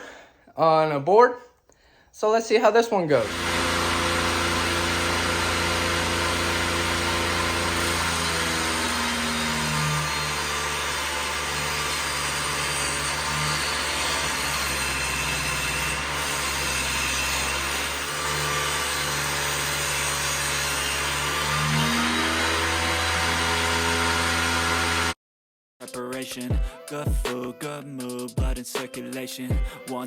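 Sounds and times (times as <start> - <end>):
table saw cutting wood: 3.2 - 25.2.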